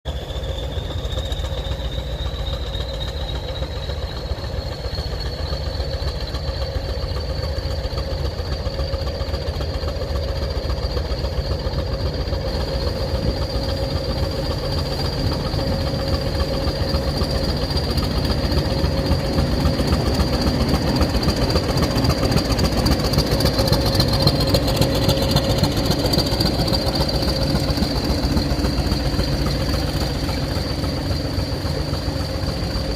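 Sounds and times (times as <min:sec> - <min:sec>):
diesel locomotive engine: 0:00.0 - 0:32.9
turbocharger whistle: 0:00.1 - 0:08.2.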